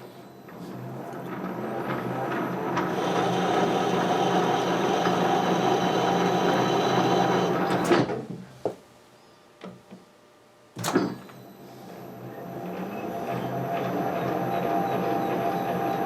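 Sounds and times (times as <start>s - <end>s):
metal lathe running: 1.4s - 7.7s, 12.7s - 16.0s.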